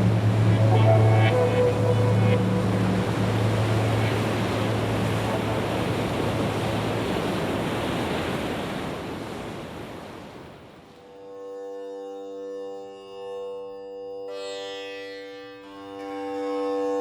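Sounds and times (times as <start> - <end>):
low steady hum: 0.0 - 6.8
steady rushing noise: 0.0 - 8.5.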